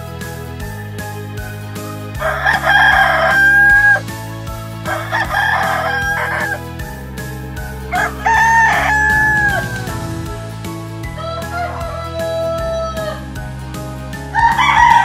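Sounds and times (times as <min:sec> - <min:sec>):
soft background music with beat: 0:00.0 - 0:15.0
rooster crowing: 0:02.2 - 0:04.0, 0:04.9 - 0:06.6, 0:07.9 - 0:10.1.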